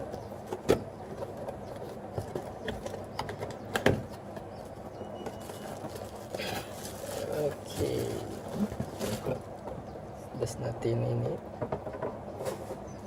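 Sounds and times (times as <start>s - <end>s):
packaging rustling: 5.2s - 9.5s.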